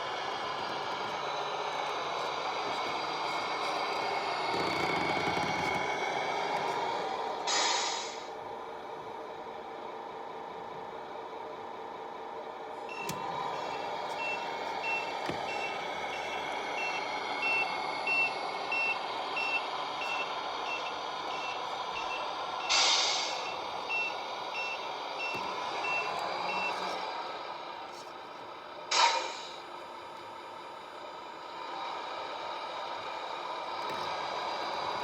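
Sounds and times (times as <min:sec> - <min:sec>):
truck engine sound: 0:00.0 - 0:35.0
reversing alarm beeps: 0:13.7 - 0:26.9.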